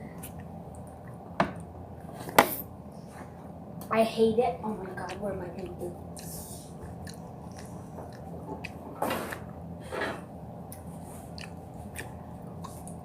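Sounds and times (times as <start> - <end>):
person chewing honeycomb: 6.0 - 9.6, 10.6 - 13.0.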